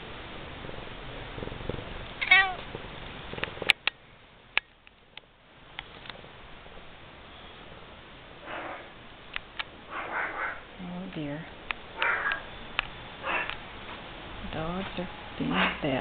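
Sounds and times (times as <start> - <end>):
cat meowing: 2.2 - 2.6.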